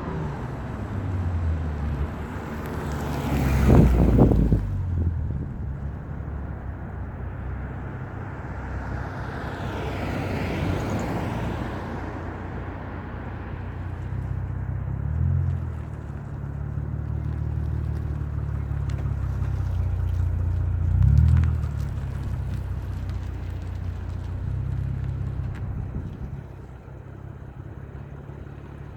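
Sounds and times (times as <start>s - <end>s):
low exhaust drone: 0.0s - 2.8s.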